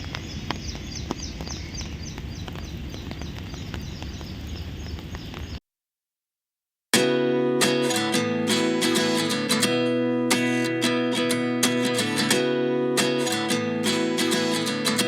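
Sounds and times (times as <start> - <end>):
bird chirping: 0.0 - 5.6
strummed acoustic guitar music: 6.9 - 15.0.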